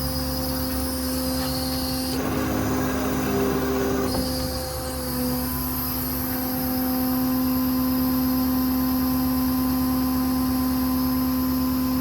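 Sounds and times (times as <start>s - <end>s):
hydraulic machine whine: 0.0s - 8.2s.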